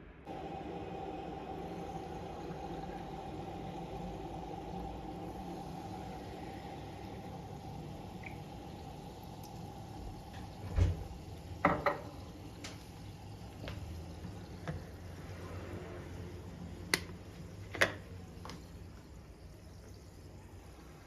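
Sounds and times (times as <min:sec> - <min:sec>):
low steady hum: 0:00.0 - 0:17.6.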